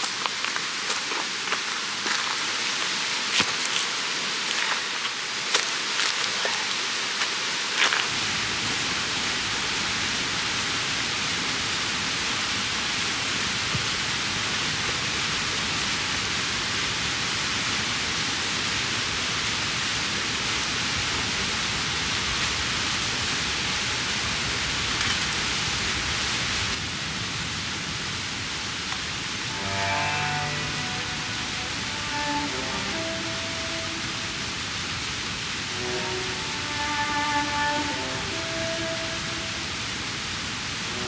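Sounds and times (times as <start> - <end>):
stream water rushing: 0.0 - 26.8, 28.9 - 41.0.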